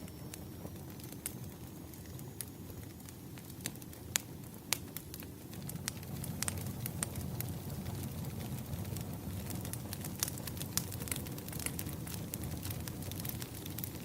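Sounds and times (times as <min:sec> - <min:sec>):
firewood crackling and popping: 0:00.0 - 0:14.0
low rumble of flames: 0:00.0 - 0:14.0.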